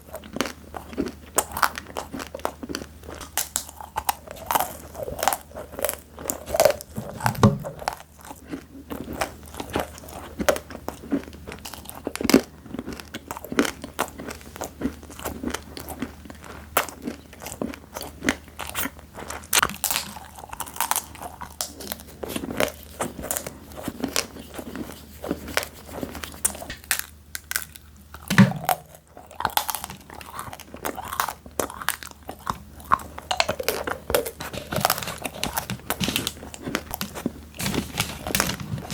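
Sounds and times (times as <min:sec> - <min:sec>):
crunching and chewing snacks: 0:00.0 - 0:38.9
soft low thumps: 0:06.9 - 0:08.0, 0:28.3 - 0:29.0.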